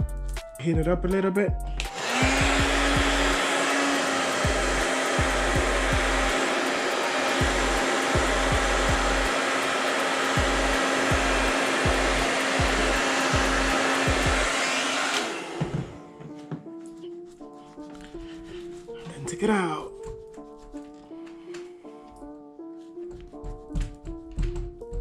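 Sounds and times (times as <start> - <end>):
hot-air blower hissing: 1.8 - 16.3.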